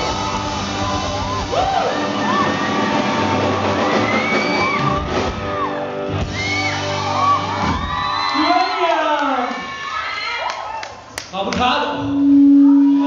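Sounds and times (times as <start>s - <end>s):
live band music: 0.0s - 7.9s
crowd screaming and whooping: 0.0s - 11.2s, 12.0s - 13.0s.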